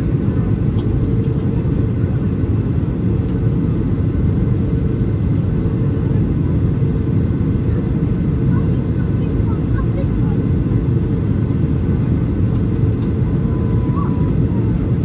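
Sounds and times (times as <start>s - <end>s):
jet engine cabin rumble: 0.0s - 15.0s.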